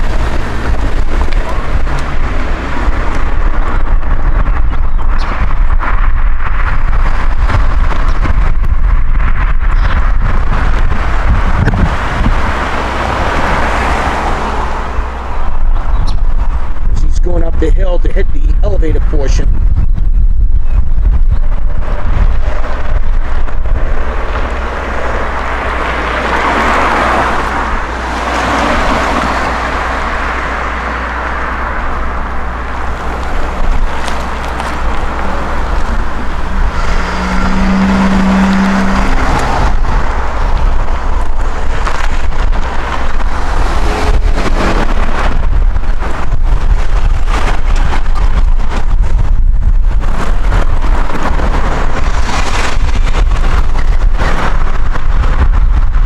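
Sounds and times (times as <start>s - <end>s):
wind noise on microphone: 0.0s - 56.0s
train rumbling past: 23.8s - 41.8s.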